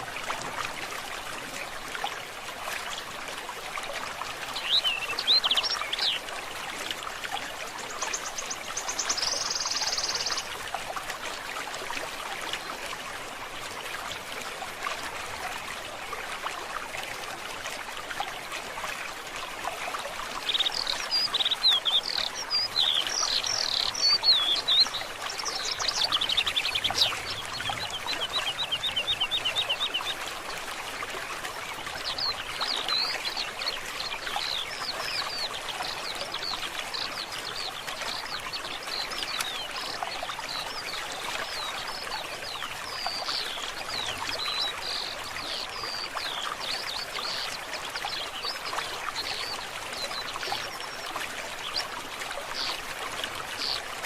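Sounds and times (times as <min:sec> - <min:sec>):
forest stream running: 0:00.0 - 0:54.0
songbirds singing: 0:04.5 - 0:06.5, 0:07.8 - 0:10.6, 0:20.4 - 0:30.2, 0:31.0 - 0:54.0.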